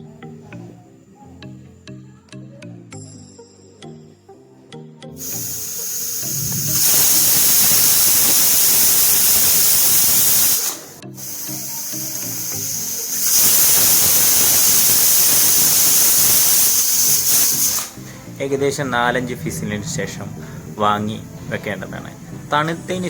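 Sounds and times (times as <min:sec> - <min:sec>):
pressure cooker whistle hissing: 0:05.2 - 0:18.8.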